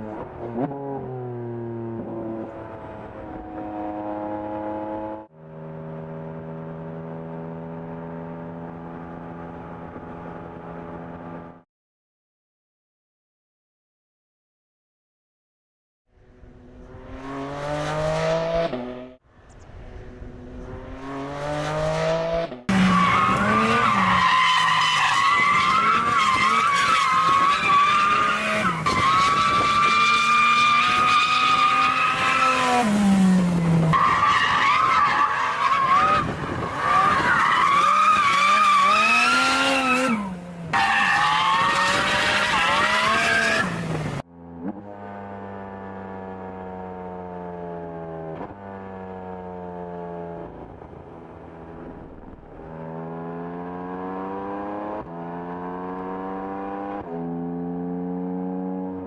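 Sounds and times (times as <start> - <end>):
car engine revving: 16.4 - 19.2, 19.8 - 46.7
tyre squeal: 22.8 - 32.8, 33.9 - 43.8.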